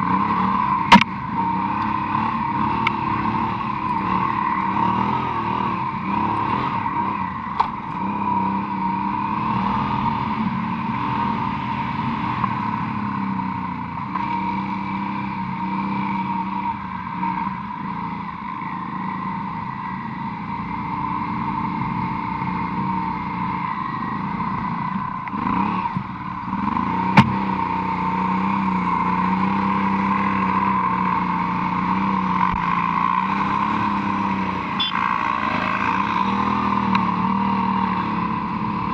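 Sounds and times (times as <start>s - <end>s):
motorcycle engine running: 0.0s - 38.9s
sharp knock: 27.2s - 27.4s.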